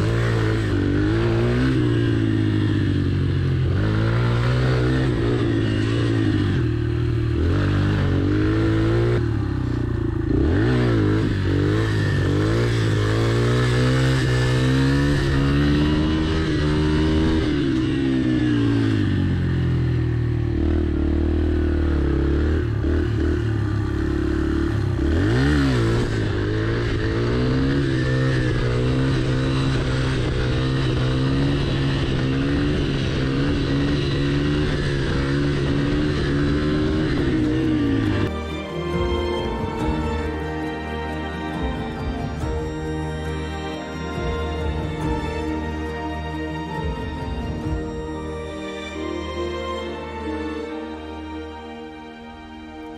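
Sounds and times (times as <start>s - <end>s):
pit bike engine revving: 0.0s - 48.4s.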